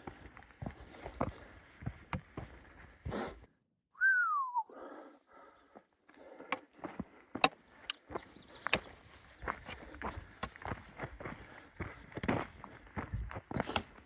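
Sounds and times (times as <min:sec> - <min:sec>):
footsteps on trail: 0:00.0 - 0:03.4, 0:05.7 - 0:14.0
short falling whistle: 0:04.0 - 0:04.7.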